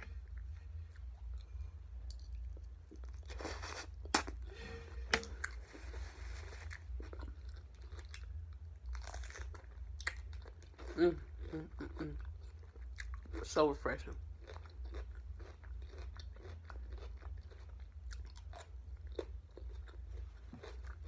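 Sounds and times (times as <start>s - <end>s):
steady low hum: 0.0s - 21.0s
crunchy chewing: 5.2s - 13.5s, 14.3s - 21.0s.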